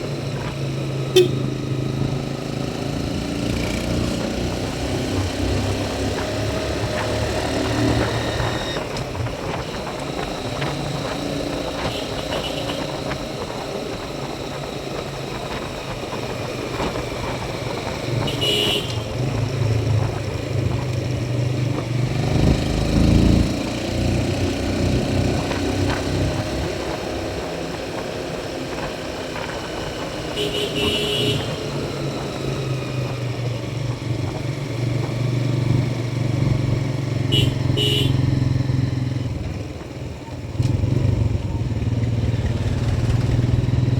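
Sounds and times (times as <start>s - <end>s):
motorcycle engine running: 0.0s - 43.9s
road and wind noise: 0.0s - 43.9s
short high-pitched beeps: 1.2s - 1.5s.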